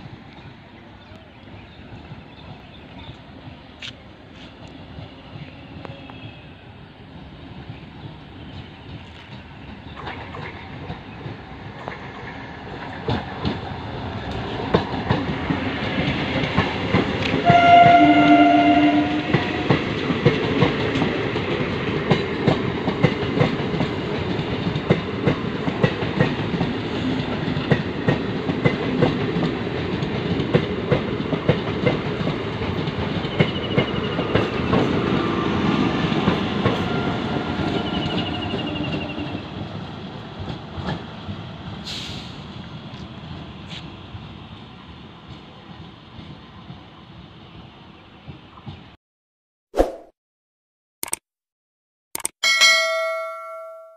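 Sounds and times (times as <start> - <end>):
electric train passing: 0.0 - 48.5
train horn: 5.8 - 6.6, 17.4 - 19.9.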